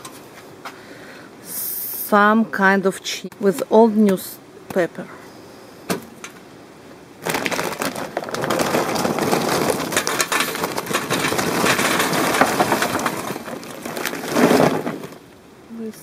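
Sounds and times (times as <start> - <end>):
newspaper being crumpled by hand: 7.2 - 15.2.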